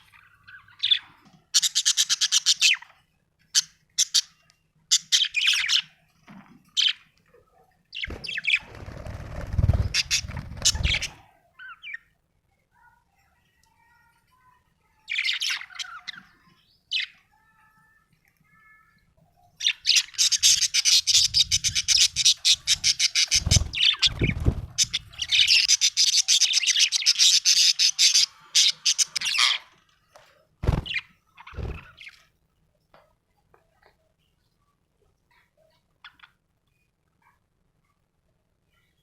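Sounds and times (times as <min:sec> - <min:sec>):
budgerigar chirping and chattering: 0:00.5 - 0:02.8, 0:09.8 - 0:12.0, 0:19.6 - 0:29.6.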